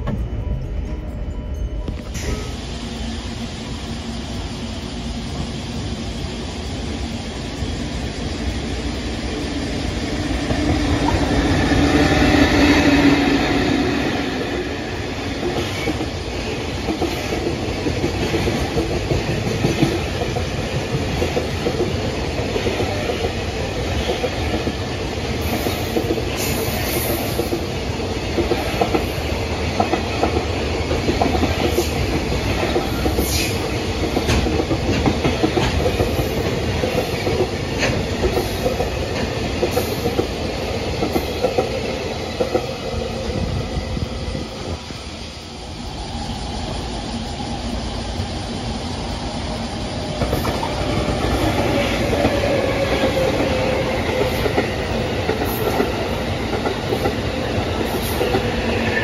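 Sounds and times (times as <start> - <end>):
train rumbling on rails: 0.0 - 59.0
wheels clacking over rail joints: 14.3 - 41.8.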